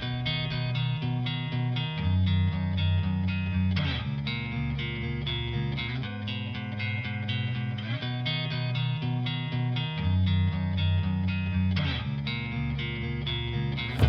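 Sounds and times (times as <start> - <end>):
bass line: 0.0 - 3.8, 13.8 - 14.0
plucked guitar: 0.0 - 14.0.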